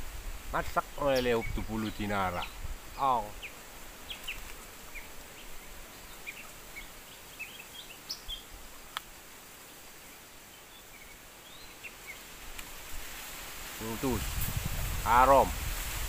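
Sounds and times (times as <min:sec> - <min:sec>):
background hiss: 0:00.0 - 0:16.0
faint bird chirps: 0:00.8 - 0:08.6.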